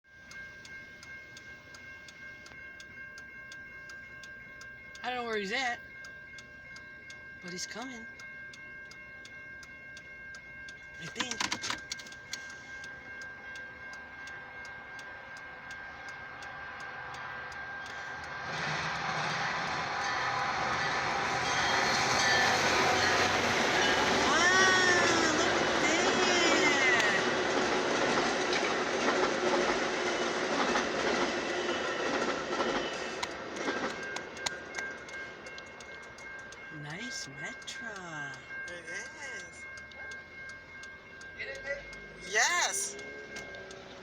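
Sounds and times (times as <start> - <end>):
railroad crossing signal ticking: 0.0 - 44.0
train rumble: 0.2 - 44.0
steady high tone: 12.1 - 44.0.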